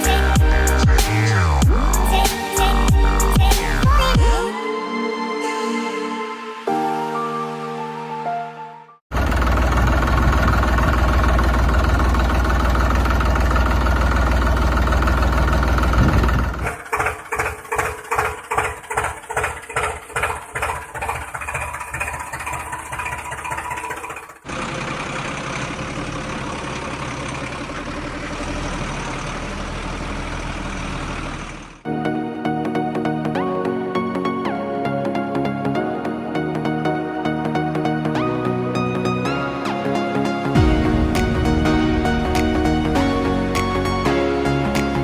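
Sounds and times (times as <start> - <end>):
engine running: 0.0 - 4.4, 9.1 - 31.9, 37.8 - 45.0.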